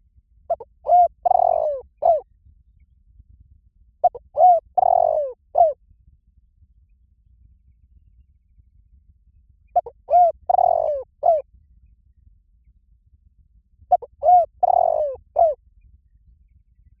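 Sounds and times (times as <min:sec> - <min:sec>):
dove cooing: 0:00.5 - 0:02.2, 0:04.0 - 0:05.8, 0:09.8 - 0:11.4, 0:13.9 - 0:15.6.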